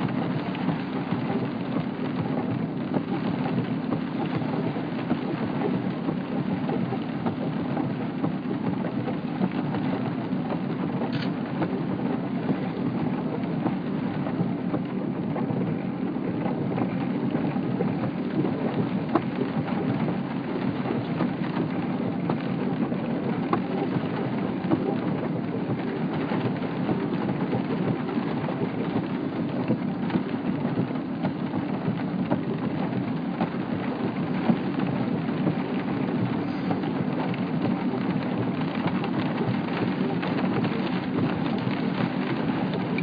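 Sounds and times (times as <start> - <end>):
steady rain patter: 0.0 - 43.0.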